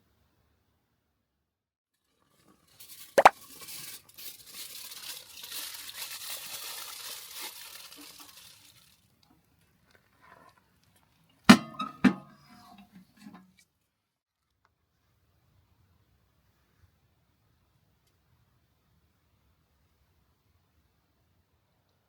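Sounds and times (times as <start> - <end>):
wrapper crinkling and tearing: 4.1 - 9.0.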